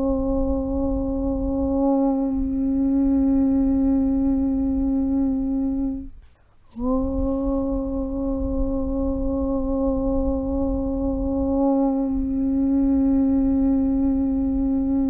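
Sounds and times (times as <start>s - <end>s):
person chanting om: 0.0s - 15.0s.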